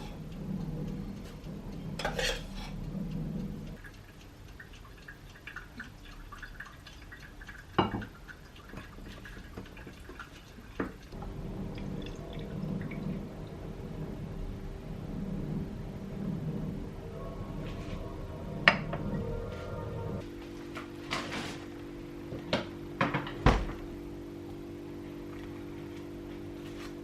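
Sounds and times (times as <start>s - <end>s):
dishes and utensils clinking: 2.0s - 2.8s
dishes clattering: 2.0s - 2.8s.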